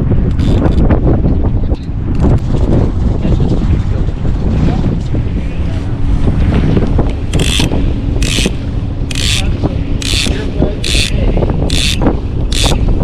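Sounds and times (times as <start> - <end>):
boat motor hum: 0.0 - 13.0
fishing reel ratcheting: 0.3 - 0.8, 7.3 - 8.5, 9.1 - 12.8.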